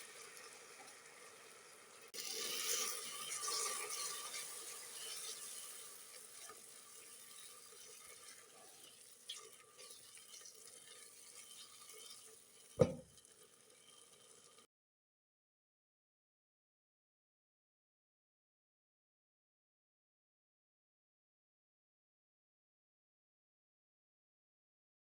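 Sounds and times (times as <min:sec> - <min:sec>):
food sizzling in a pot: 0:00.0 - 0:14.7
sharp knock: 0:12.8 - 0:13.0.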